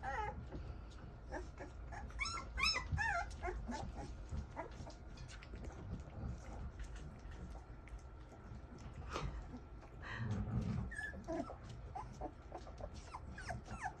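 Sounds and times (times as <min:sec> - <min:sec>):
puppies whimpering: 0:00.0 - 0:07.6, 0:10.6 - 0:14.0.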